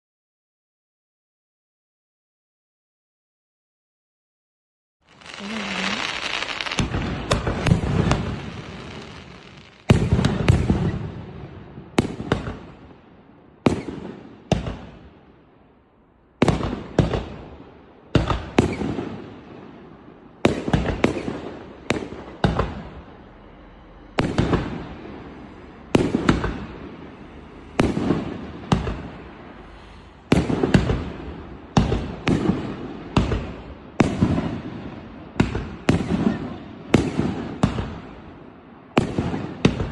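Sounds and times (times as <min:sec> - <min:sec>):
firework crackle: 0:05.1 - 0:11.1
firework shots: 0:05.1 - 0:13.0, 0:13.6 - 0:15.2, 0:16.4 - 0:19.5, 0:20.4 - 0:23.0, 0:25.9 - 0:26.9, 0:27.8 - 0:29.3, 0:30.3 - 0:38.3, 0:38.9 - 0:39.9.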